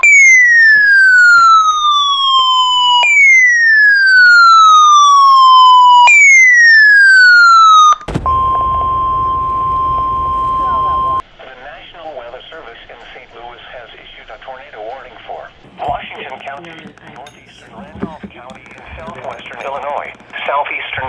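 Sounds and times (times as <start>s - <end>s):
radio static: 8.1s - 11.2s, 15.7s - 21.0s
steady alarm tone: 8.1s - 11.2s.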